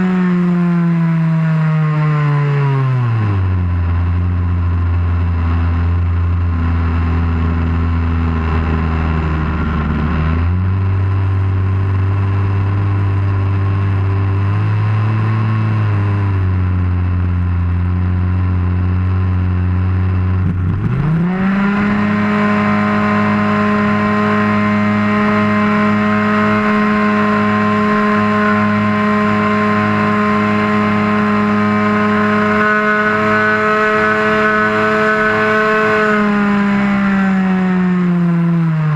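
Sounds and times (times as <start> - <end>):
model airplane engine: 0.0 - 38.9.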